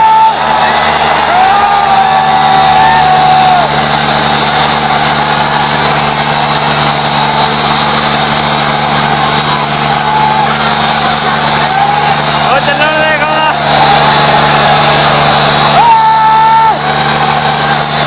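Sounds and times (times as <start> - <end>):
long high held tone: 0.0 - 18.0
tractor engines under load: 2.6 - 15.8, 16.8 - 18.0.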